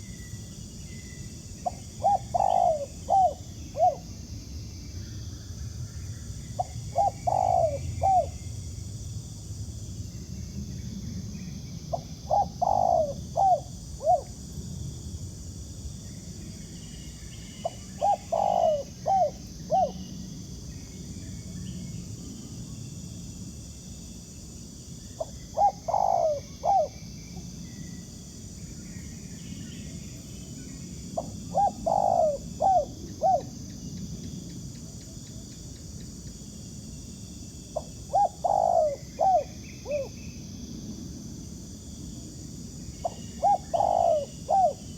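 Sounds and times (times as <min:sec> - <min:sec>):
dove cooing: 0:01.6 - 0:04.0, 0:06.6 - 0:08.4, 0:11.9 - 0:14.4, 0:17.6 - 0:20.0, 0:25.2 - 0:27.0, 0:31.2 - 0:33.5, 0:37.8 - 0:40.1, 0:43.0 - 0:44.8.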